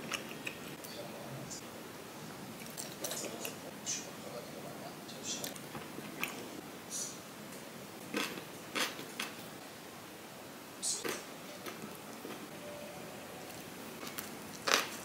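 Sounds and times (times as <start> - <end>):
person chewing chewy food: 8.1 - 9.4, 13.4 - 15.0.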